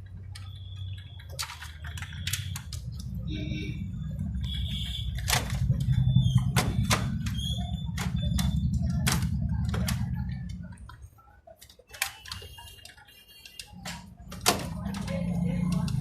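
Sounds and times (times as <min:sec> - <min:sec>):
paper feed clicks: 0:00.0 - 0:03.3, 0:04.2 - 0:16.0.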